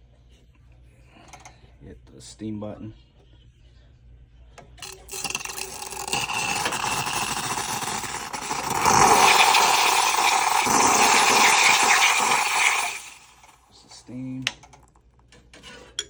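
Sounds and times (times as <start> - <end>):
steam wand hissing: 4.8 - 14.0.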